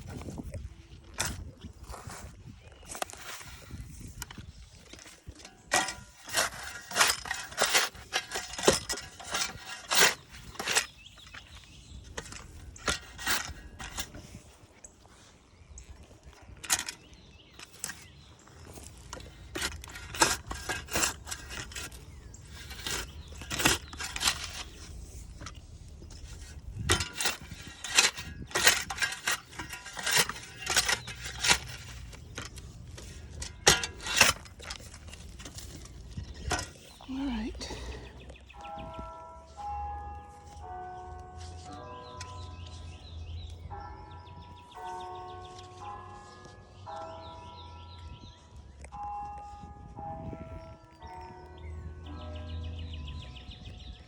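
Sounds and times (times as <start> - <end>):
shovel chopping and scraping soil: 0.0 - 14.6, 16.5 - 38.2.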